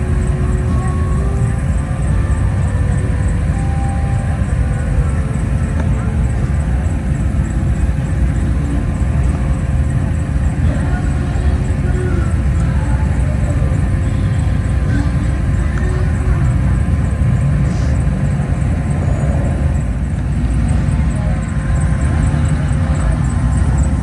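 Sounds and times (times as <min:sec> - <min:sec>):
faint voices: 0:00.0 - 0:24.0
cars driving past: 0:16.2 - 0:24.0.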